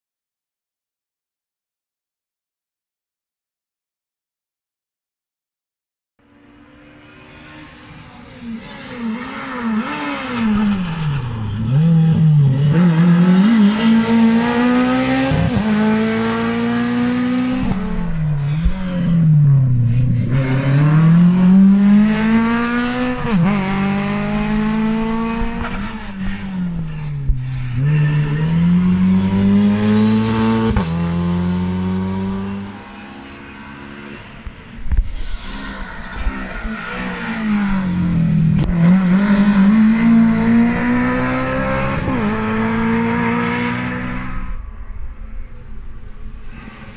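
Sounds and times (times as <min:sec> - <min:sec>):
rally car engine revving: 0:06.5 - 0:44.7.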